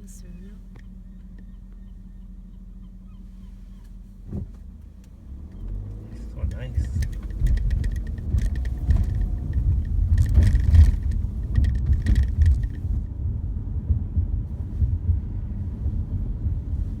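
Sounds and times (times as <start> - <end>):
rumble of road vehicles: 0.0 - 17.0
faint clicking: 4.8 - 13.0.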